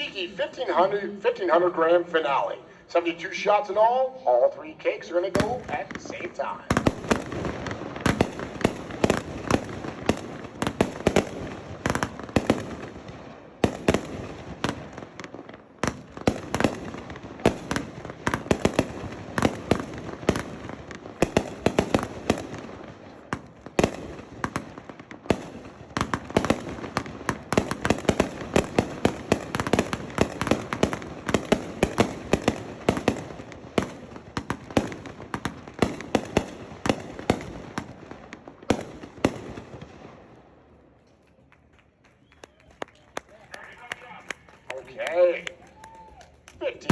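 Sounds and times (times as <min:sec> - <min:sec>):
fireworks barrage bursting: 0:02.8 - 0:40.5
firework crackle: 0:05.5 - 0:40.2.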